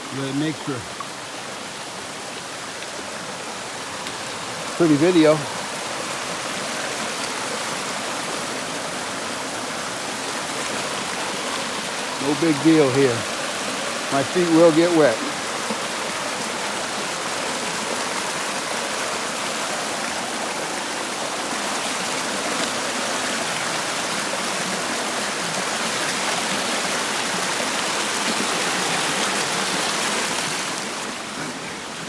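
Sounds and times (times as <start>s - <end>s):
brook rushing over small falls: 0.0s - 32.0s.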